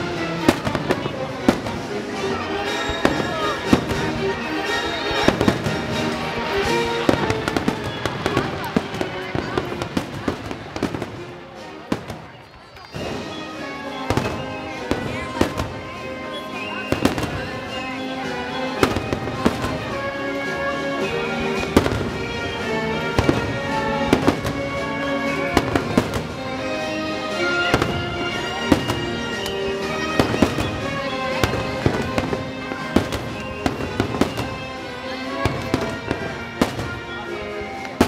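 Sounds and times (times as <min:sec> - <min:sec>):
show music: 0:00.0 - 0:38.0.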